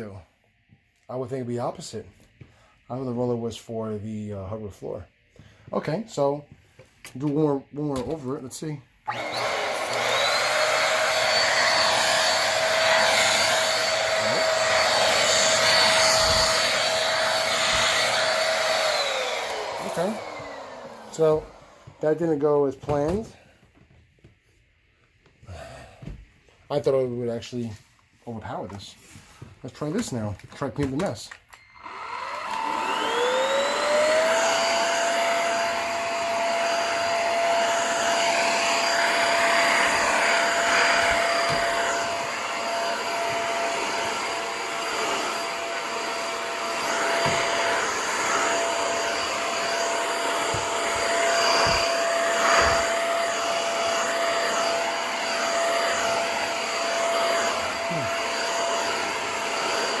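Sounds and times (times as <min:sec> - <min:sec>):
vacuum cleaner motor whine: 0:09.0 - 0:23.9, 0:31.5 - 1:00.0
vacuum head knocking: 0:46.8 - 0:52.9.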